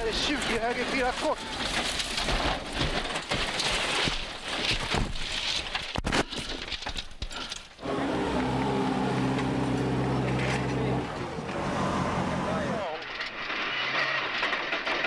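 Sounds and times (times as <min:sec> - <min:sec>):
steady even engine note: 0:07.8 - 0:12.8
rally car engine and tyres rushing: 0:07.8 - 0:13.1.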